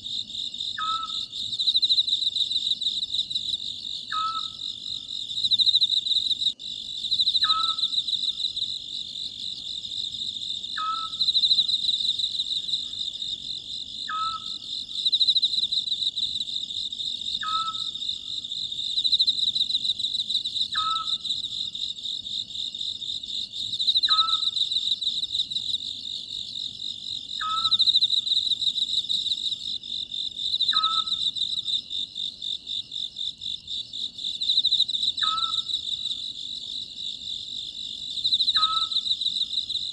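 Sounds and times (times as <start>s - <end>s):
crickets chirping: 0.0s - 39.9s
owl calling: 0.8s - 1.3s, 4.1s - 4.6s, 7.4s - 7.9s, 10.8s - 11.2s, 14.1s - 14.6s, 17.4s - 17.9s, 20.8s - 21.2s, 24.1s - 24.6s, 27.4s - 27.8s, 30.7s - 31.2s, 35.2s - 35.7s, 38.6s - 39.0s.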